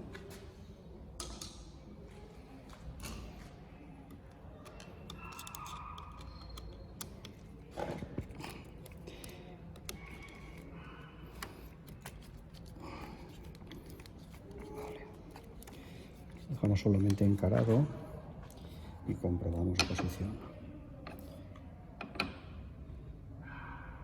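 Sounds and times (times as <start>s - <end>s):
clicks and metallic rattles of tools: 4.2s - 10.6s.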